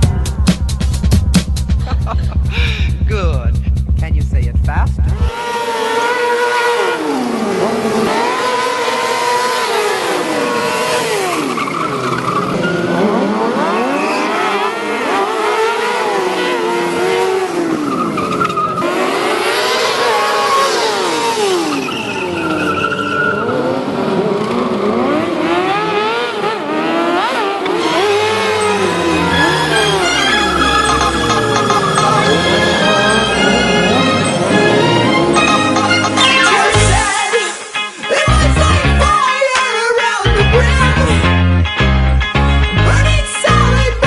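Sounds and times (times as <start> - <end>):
motorcycle engine revving: 5.0 - 37.1
tyres squealing: 17.2 - 23.8, 27.7 - 37.2.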